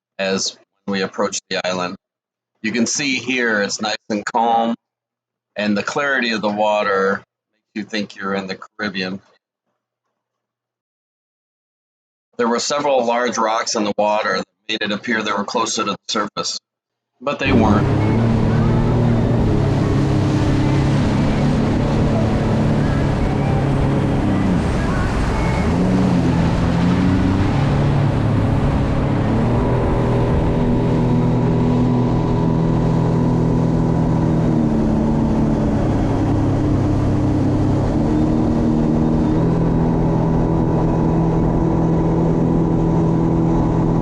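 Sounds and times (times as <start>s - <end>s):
wind noise: 17.5s - 32.9s
rushing water: 17.5s - 33.0s
jet ski engine running: 17.5s - 44.0s.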